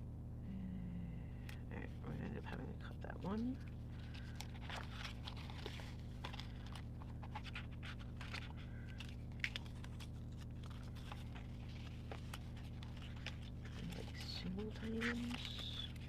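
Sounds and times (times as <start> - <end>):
steady low hum: 0.0 - 16.0
paper sheets rustling: 3.3 - 16.0.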